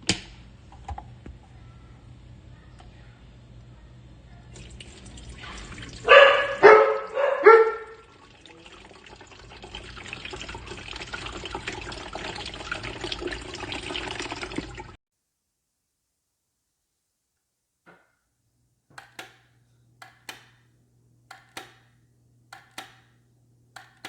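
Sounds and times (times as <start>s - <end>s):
dog barking: 6.0s - 8.1s
electric kettle hissing: 17.9s - 24.0s.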